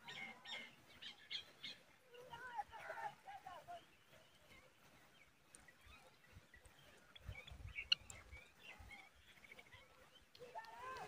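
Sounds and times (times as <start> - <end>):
high bird chirps: 4.0 - 10.3.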